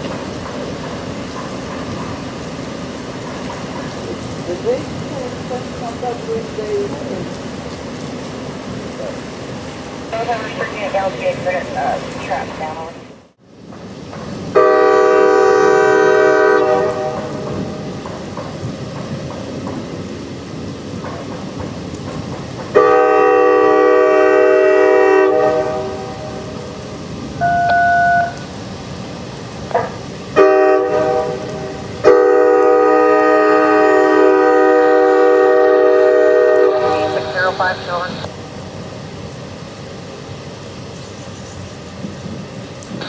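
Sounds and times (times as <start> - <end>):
train rumbling past: 0.0 - 43.0
locomotive air horn: 14.6 - 17.4, 22.8 - 26.5, 30.4 - 37.6
brief beep: 27.4 - 28.4.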